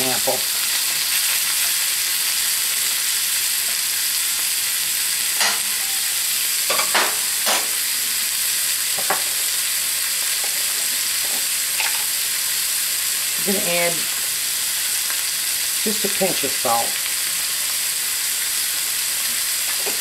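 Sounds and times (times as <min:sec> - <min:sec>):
food sizzling in skillet: 0:00.0 - 0:20.0
spoon scraping and knocking pan: 0:06.7 - 0:07.8, 0:09.0 - 0:09.4.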